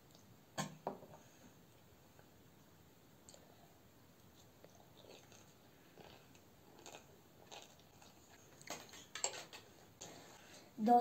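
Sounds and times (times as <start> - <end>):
person chewing: 4.2 - 9.2.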